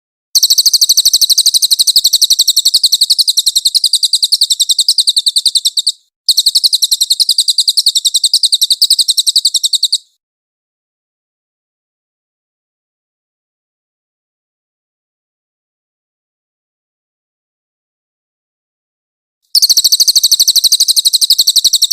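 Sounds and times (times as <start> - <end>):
bird singing high trill: 0.4 - 10.1, 19.6 - 21.9.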